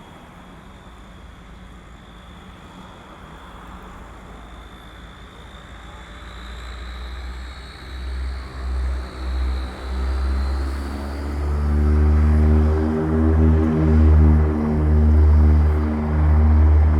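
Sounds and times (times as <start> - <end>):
turboprop engine whine: 0.0 - 16.9
low propeller rumble: 9.9 - 16.9.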